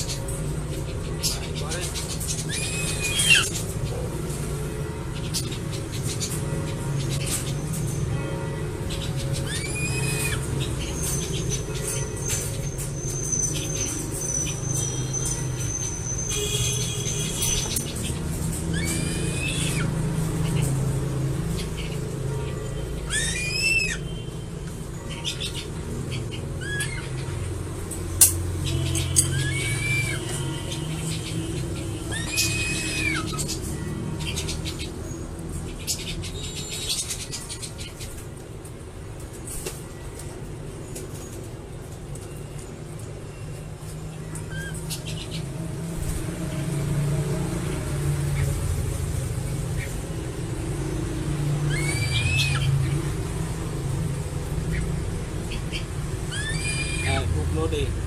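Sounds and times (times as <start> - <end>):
low rumble like distant traffic: 0.0 - 58.0
high bird whistles: 9.4 - 17.8, 23.0 - 24.3, 51.7 - 52.9.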